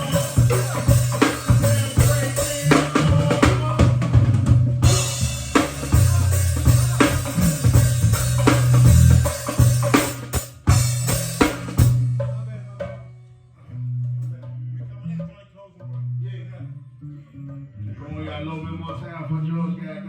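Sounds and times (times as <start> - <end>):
live band playing: 0.0 - 13.0
heavy bass line: 0.0 - 15.2.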